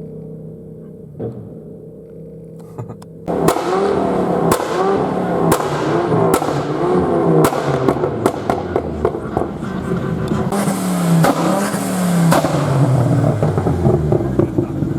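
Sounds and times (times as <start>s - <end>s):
engine revving: 2.7s - 14.9s
exhaust backfire bangs: 3.2s - 14.9s.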